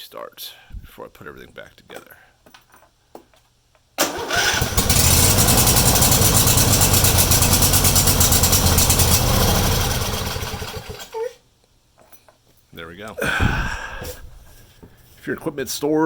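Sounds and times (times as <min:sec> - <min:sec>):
riding mower engine running: 0:04.0 - 0:11.2.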